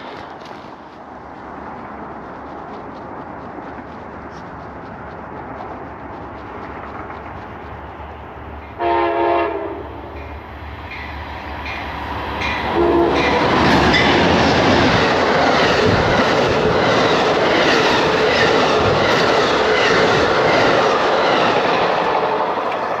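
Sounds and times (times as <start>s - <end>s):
wheels clicking over rail joints: 0.0s - 8.8s
train cars rolling past: 0.0s - 23.0s.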